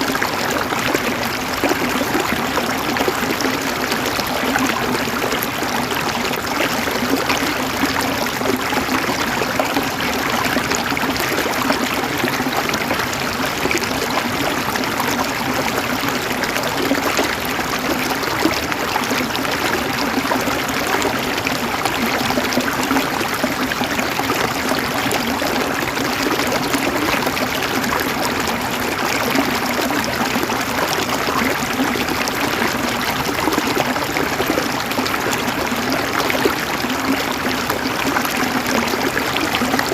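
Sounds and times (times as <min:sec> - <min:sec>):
stream water flowing over rocks: 0:00.0 - 0:39.9.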